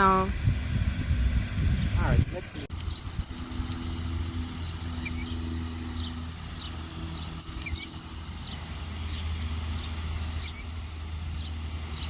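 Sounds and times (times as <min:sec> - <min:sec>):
steady low hum: 0:00.0 - 0:12.0
sharp high bird alarm calls: 0:02.7 - 0:12.0.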